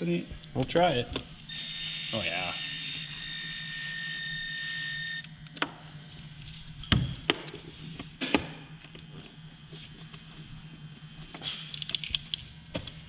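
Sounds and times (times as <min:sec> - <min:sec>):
high-pitched whine: 0:01.5 - 0:05.3.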